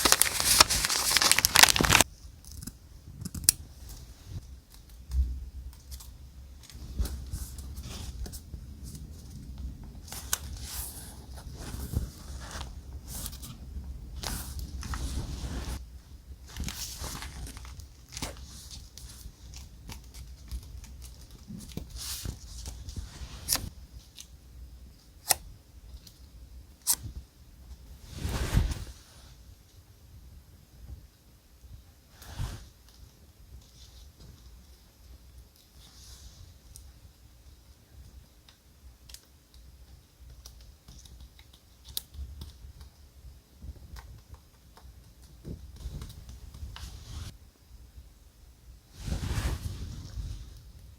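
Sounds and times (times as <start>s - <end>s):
paper rustling and tearing: 0.0s - 2.1s.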